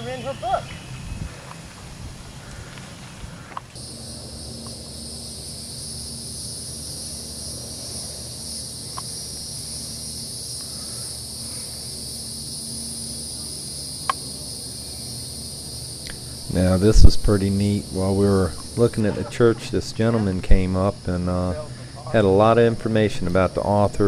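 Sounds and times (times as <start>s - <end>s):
insects chirring: 0.0s - 24.0s
faint clicks: 2.6s - 3.8s, 8.9s - 9.1s.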